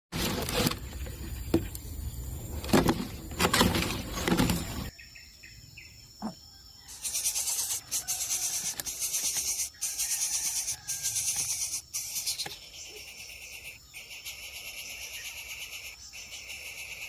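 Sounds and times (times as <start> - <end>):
rustling: 0.1 - 1.7
insects trilling: 0.6 - 17.0.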